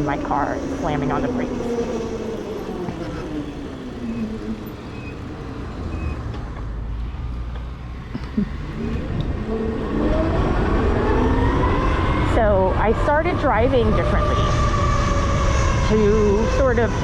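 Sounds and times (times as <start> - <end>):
wind and road noise: 0.0 - 17.0.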